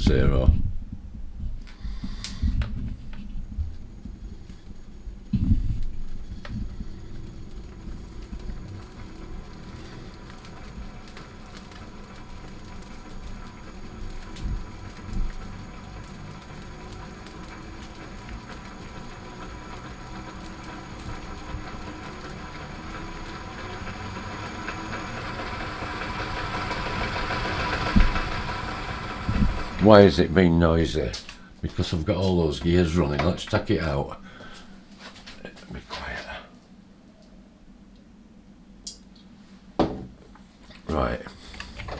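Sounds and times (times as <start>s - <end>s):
faint high whine: 1.8s - 34.3s, 40.9s - 41.9s
lathe gears clattering: 3.4s - 30.5s, 41.5s - 41.9s.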